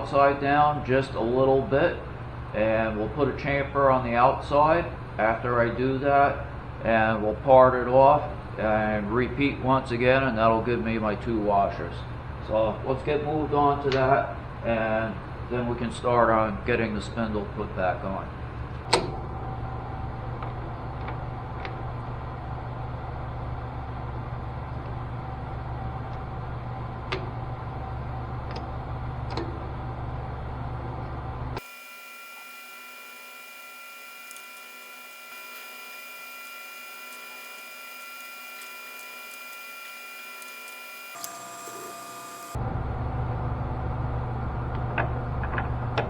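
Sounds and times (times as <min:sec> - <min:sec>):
metal lathe motor hum: 0:31.6 - 0:42.6
high steady whine: 0:31.6 - 0:43.2
small sharp clicks: 0:34.2 - 0:34.7.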